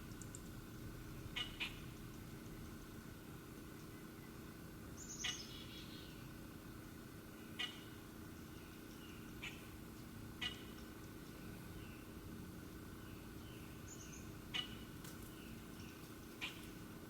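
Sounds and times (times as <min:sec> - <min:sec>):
birds twittering: 0:00.0 - 0:02.8, 0:03.7 - 0:16.8
soft bird calls: 0:05.0 - 0:16.8.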